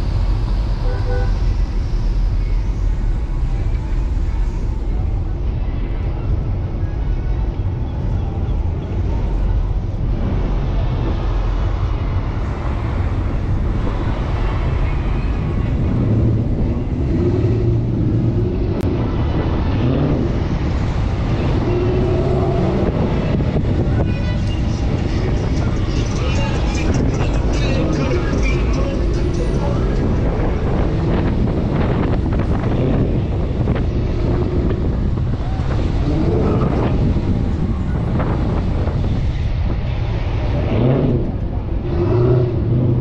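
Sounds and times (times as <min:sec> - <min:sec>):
car engine low rumble: 0:00.0 - 0:43.0
road and wind noise: 0:00.0 - 0:43.0.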